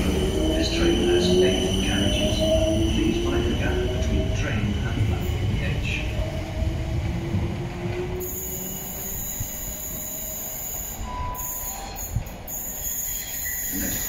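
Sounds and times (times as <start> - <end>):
train wheels rumbling on rails: 0.0 - 14.0
wheel squeal: 8.2 - 14.0.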